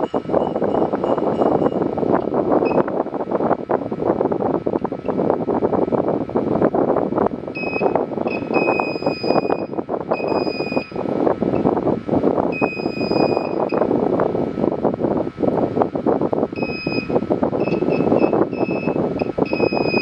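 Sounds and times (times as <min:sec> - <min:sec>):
high electronic beep tone: 0:00.0 - 0:01.9.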